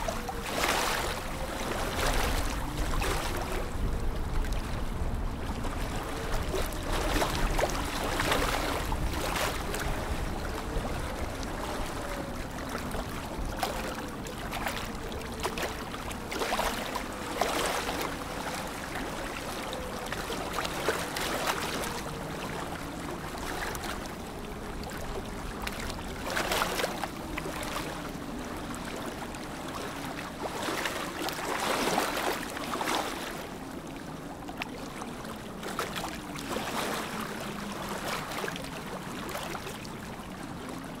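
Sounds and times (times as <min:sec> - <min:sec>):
lake water lapping: 0:00.0 - 0:41.0.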